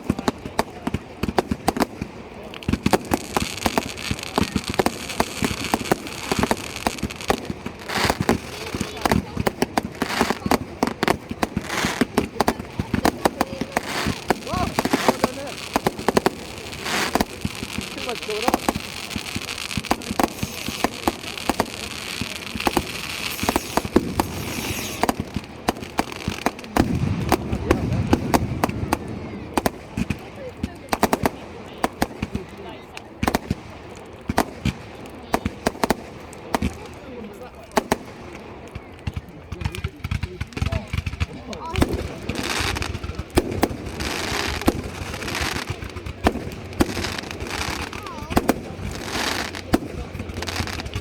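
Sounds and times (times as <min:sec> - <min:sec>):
crackling hiss: 0:00.0 - 0:51.0
fireworks bangs and cracks: 0:00.0 - 0:51.0
crackle and hiss of shells: 0:13.8 - 0:26.7.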